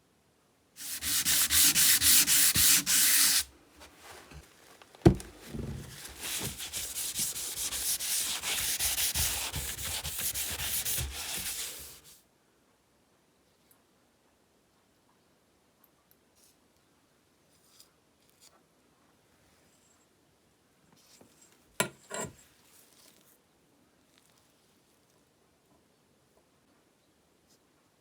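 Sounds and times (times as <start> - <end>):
scrubbing a metal part: 0.8 - 3.5, 5.1 - 12.1.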